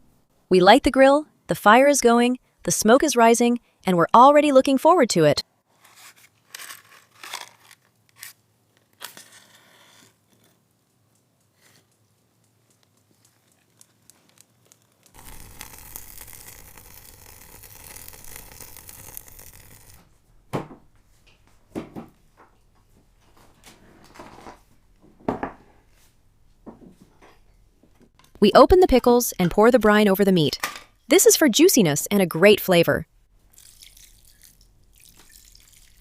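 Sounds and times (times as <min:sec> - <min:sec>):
wood fire crackling: 0:11.5 - 0:25.0
dense crackling hiss: 0:15.1 - 0:20.1.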